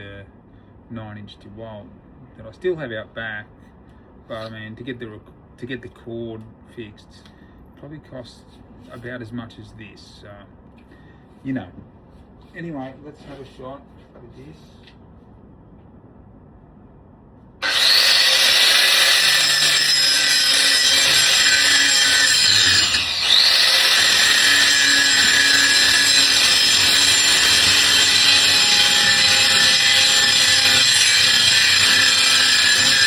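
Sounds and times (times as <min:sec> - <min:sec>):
angle grinder whining: 0:17.6 - 0:33.0.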